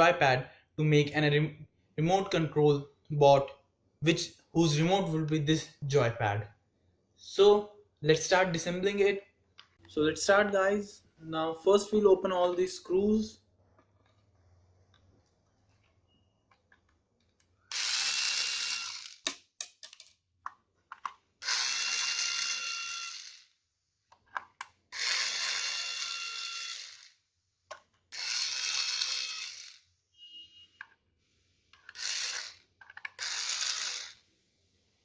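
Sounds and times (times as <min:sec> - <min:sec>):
electric screwdriver running: 0:17.7 - 0:19.3, 0:21.4 - 0:23.5, 0:25.0 - 0:27.2, 0:28.1 - 0:29.9, 0:31.9 - 0:34.2.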